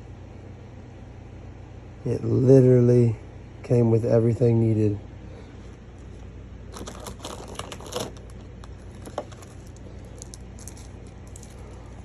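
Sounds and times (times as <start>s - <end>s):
steady low hum: 0.0s - 12.0s
packaging crinkling and rustling: 6.0s - 12.0s.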